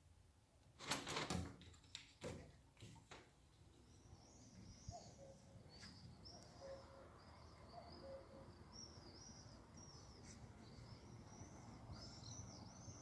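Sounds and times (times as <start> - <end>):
songbird chirping: 3.6 - 13.0.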